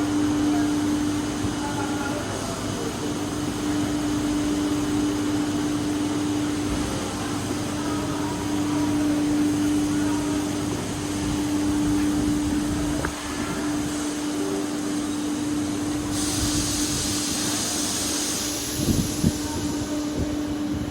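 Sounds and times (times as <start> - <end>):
high hiss: 12.8 - 20.8.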